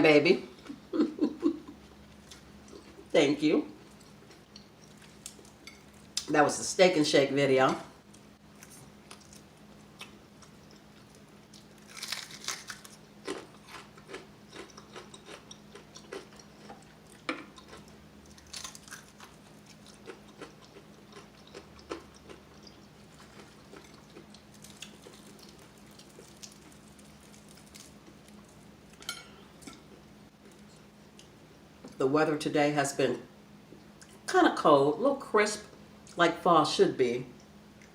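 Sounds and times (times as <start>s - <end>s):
crunching and chewing chicken: 2.0s - 3.1s, 3.8s - 6.3s, 8.1s - 31.4s.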